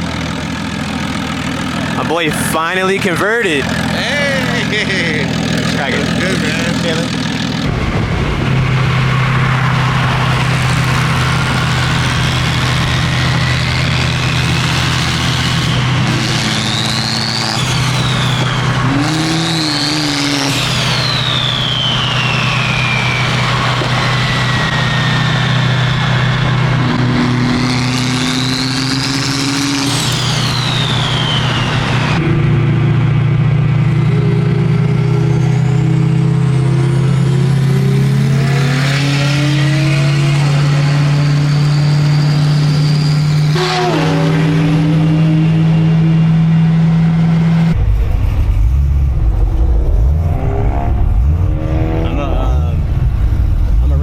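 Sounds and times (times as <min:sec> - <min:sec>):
low engine drone: 0:00.0 - 0:54.0
turbo whine: 0:02.2 - 0:54.0.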